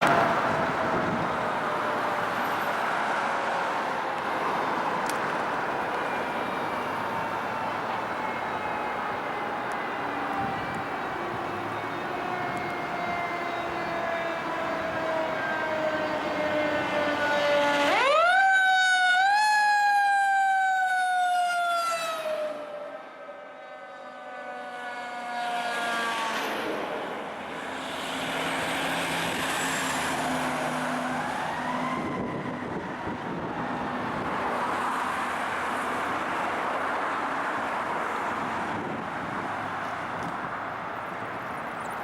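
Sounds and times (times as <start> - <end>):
truck engine noise: 0.0 - 18.3, 26.7 - 42.0
fire truck siren wailing: 0.0 - 41.6
road vehicle noise: 0.0 - 42.0.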